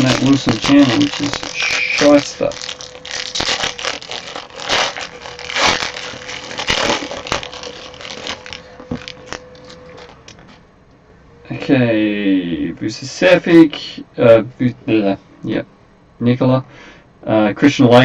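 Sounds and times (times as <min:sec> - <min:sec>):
cards and plastic sleeves rustling: 0:00.0 - 0:10.6.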